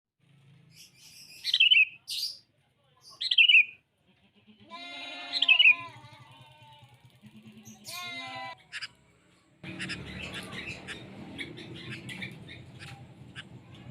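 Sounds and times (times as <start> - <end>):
bird chirpy calls: 0.7 - 2.4, 3.1 - 3.8, 5.3 - 5.9, 7.6 - 9.0, 9.6 - 13.6.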